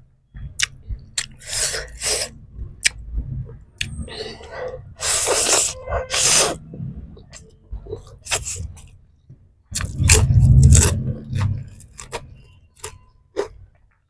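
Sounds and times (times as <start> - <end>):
loud low rumble: 0.3 - 8.8, 9.8 - 12.4.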